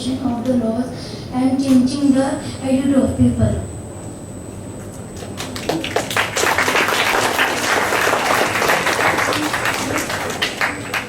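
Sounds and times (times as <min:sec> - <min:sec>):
audience clapping: 0:05.2 - 0:11.0.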